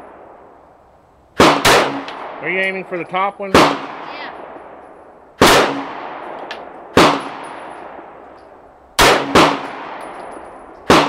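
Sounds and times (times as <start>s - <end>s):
pistol shots with echo: 1.4s - 4.8s, 5.4s - 8.2s, 9.0s - 11.0s.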